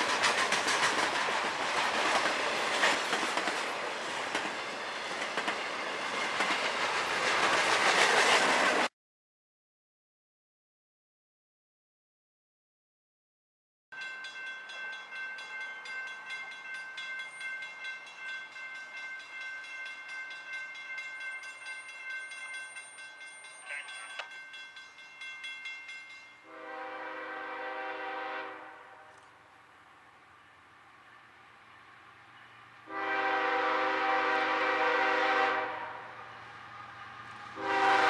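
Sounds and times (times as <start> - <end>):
freight train rolling: 0.0 - 8.9, 14.0 - 38.0
train horn blast: 26.4 - 29.4, 32.8 - 36.3, 37.6 - 38.0.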